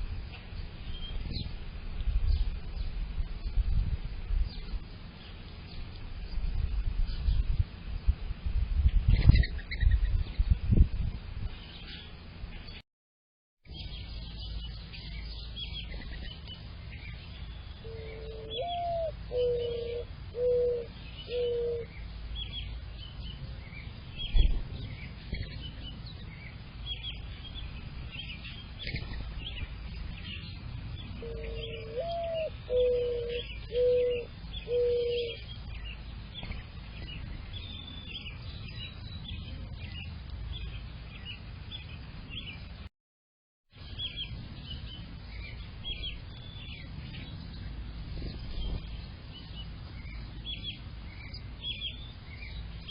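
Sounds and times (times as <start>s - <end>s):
songbirds chirping: 0.0s - 8.2s, 11.4s - 12.8s, 13.7s - 42.9s, 43.7s - 52.9s
dove cooing: 17.9s - 21.9s, 31.2s - 35.4s.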